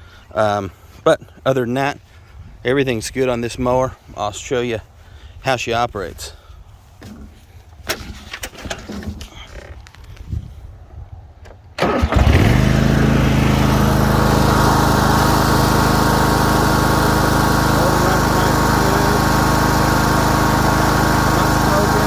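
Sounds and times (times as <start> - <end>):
mower engine starting and running: 11.8 - 22.0.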